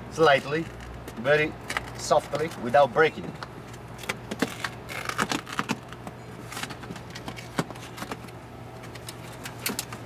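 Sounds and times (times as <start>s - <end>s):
plastic sheet peeling rustle: 4.3s - 8.4s.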